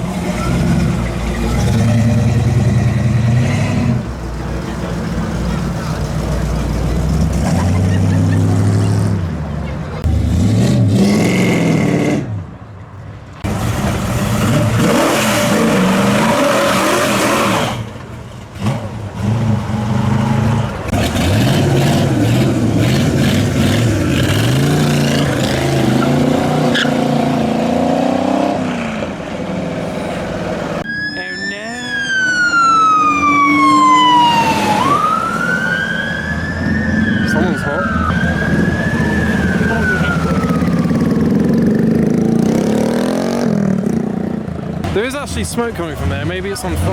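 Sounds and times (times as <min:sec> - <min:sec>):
car engines revving: 0:00.0 - 0:46.9
siren wailing: 0:30.8 - 0:41.8.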